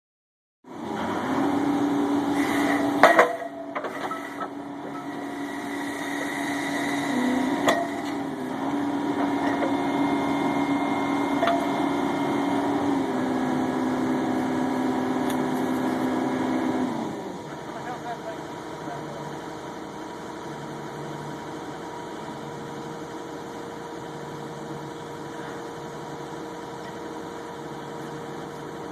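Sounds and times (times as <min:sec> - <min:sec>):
machine humming: 0:01.2 - 0:23.4
hammer clanking on steel pipe: 0:02.6 - 0:05.4, 0:07.6 - 0:08.2, 0:11.4 - 0:11.9.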